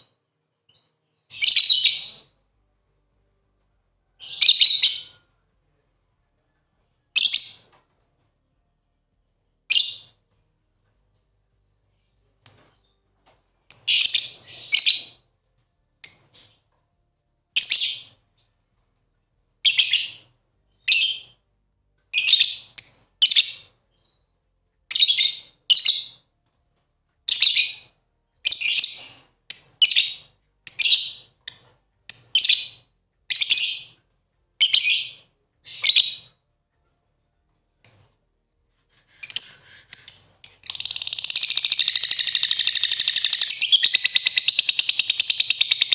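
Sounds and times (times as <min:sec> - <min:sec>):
lovebirds chirping: 0:39.0 - 0:45.9.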